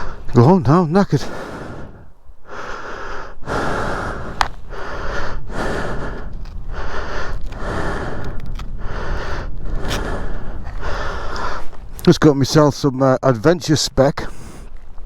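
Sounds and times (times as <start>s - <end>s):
person breathing hard: 0.0s - 0.3s, 1.1s - 12.0s, 14.2s - 15.0s.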